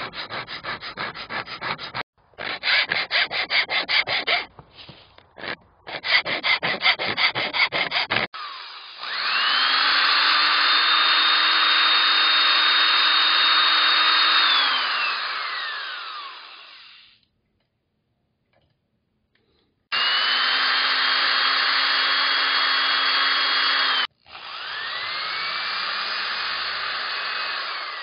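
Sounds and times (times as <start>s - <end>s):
angle grinder whining: 7.6s - 17.2s, 19.9s - 28.0s.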